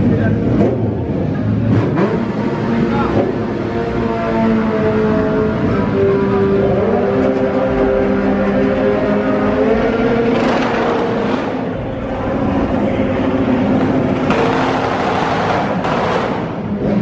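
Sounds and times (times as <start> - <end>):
car engines revving: 0.0 - 17.0
exhaust noise surges: 0.0 - 17.0.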